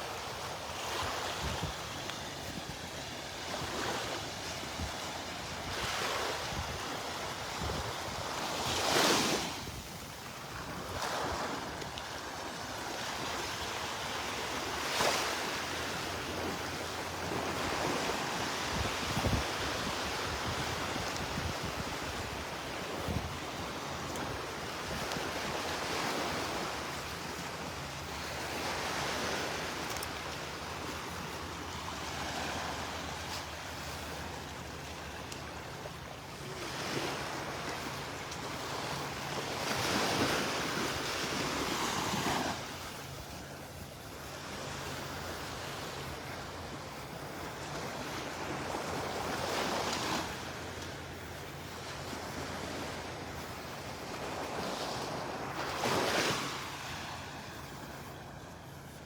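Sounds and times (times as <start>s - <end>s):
surf waves breaking: 14.2s - 59.0s
wind buffeting microphone: 17.6s - 26.7s.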